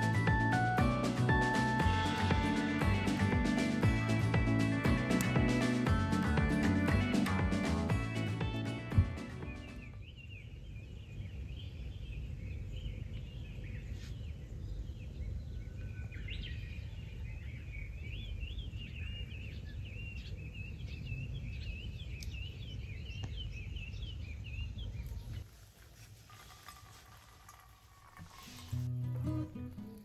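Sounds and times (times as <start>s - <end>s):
birds chirping and warbling: 8.2s - 25.4s.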